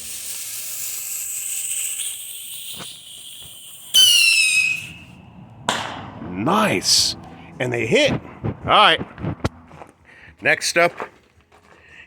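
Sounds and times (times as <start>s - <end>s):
fuse hissing: 0.0s - 5.2s
rocket whistle: 1.0s - 5.3s.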